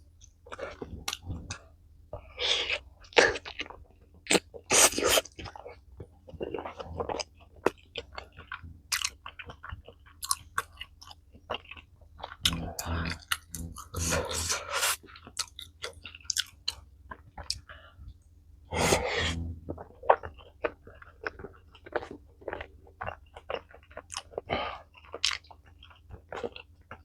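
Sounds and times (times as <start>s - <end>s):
chewing food: 0.1s - 27.0s
food crunching: 2.2s - 17.8s, 18.7s - 27.0s
wet mouth clicks: 12.3s - 16.8s, 18.7s - 20.3s.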